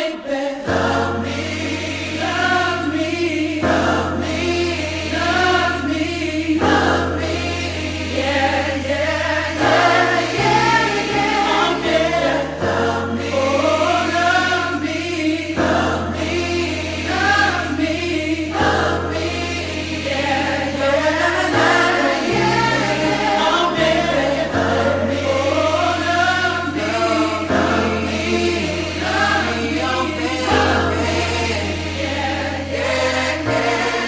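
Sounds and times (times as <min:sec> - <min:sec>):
choir singing sustained chords: 0:00.0 - 0:34.0.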